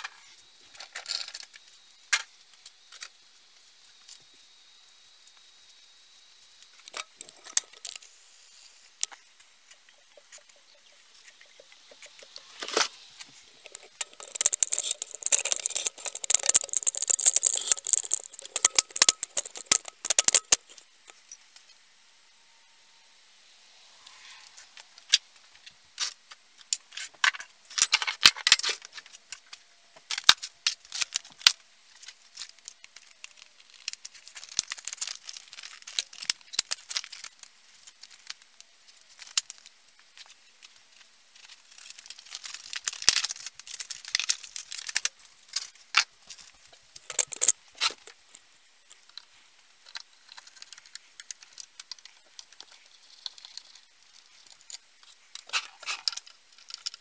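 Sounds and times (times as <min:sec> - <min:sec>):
metal parts and tools clinking: 0:11.5 - 0:21.4, 0:26.7 - 0:29.5, 0:41.9 - 0:48.2.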